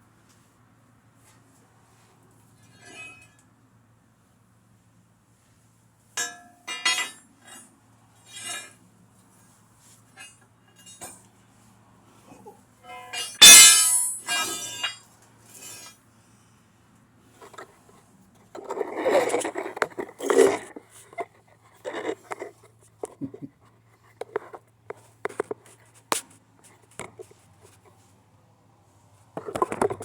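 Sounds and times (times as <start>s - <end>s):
metal parts clicking and knocking: 13.1s - 15.0s.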